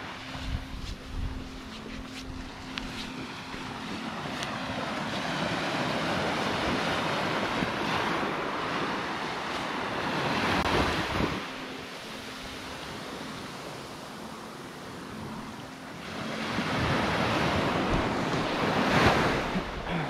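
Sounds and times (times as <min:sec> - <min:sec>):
wind on microphone: 0:00.0 - 0:03.0
sea surf washing: 0:00.0 - 0:20.0.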